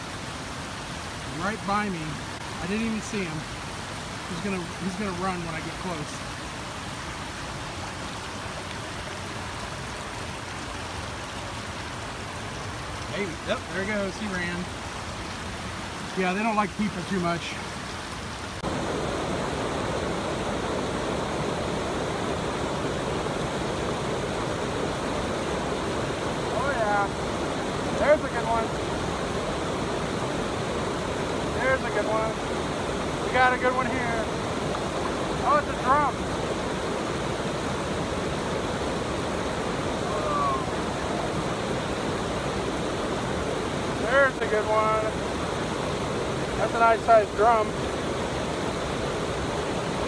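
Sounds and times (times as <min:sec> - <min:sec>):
river water rushing: 0:00.0 - 0:50.0.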